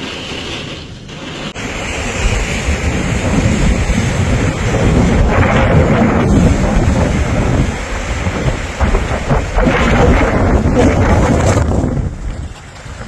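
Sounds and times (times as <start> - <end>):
storm wind blasting microphone: 0.0 - 13.0.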